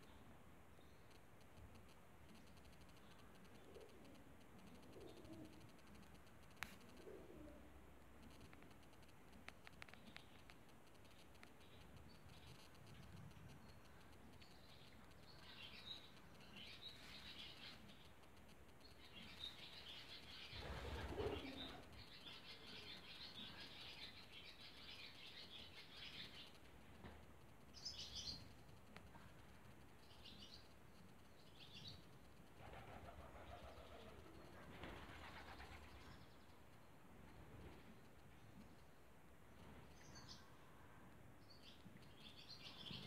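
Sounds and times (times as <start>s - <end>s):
small birds chirping: 9.4s - 36.6s, 41.4s - 43.0s.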